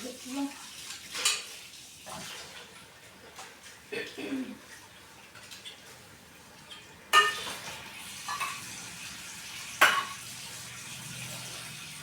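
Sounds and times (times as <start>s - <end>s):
metal utensils clanking: 6.7s - 8.8s.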